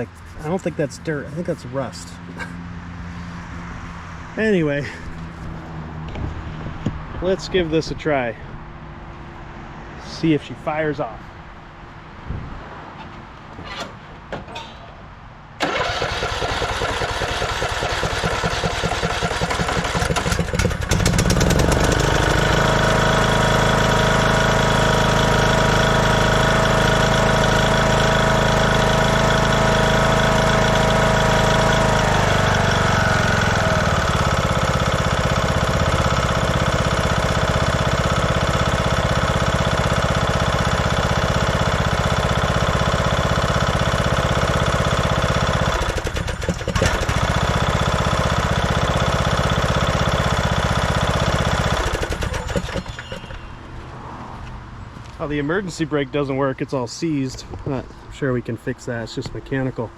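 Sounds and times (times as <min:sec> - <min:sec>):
electric starter cranking engine: 0:15.6 - 0:53.6
lawn tractor engine running: 0:15.6 - 0:53.7.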